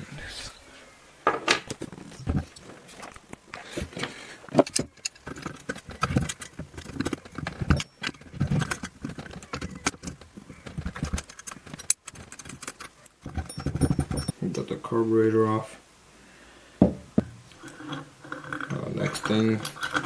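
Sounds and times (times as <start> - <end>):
metallic clinks of hand tools: 13.4 - 14.4.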